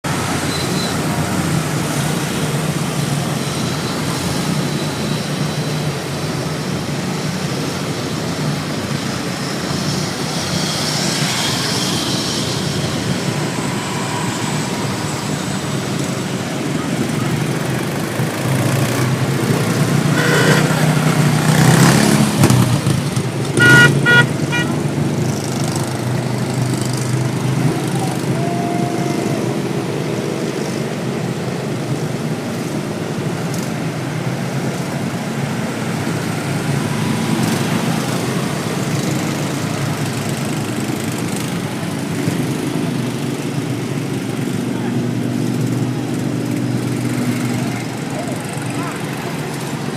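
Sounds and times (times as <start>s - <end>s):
lawn mower engines driving past: 0.0s - 49.9s
short horn beeps: 20.1s - 20.8s, 23.6s - 24.8s.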